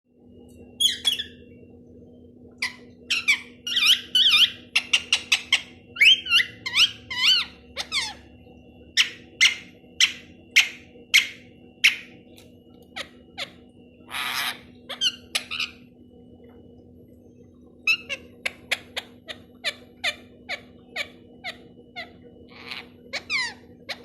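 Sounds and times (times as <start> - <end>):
faint steady hum: 0.1 - 24.0
parrot squawking: 0.8 - 1.4, 2.6 - 8.3, 9.0 - 12.2, 13.0 - 15.8, 17.9 - 24.0.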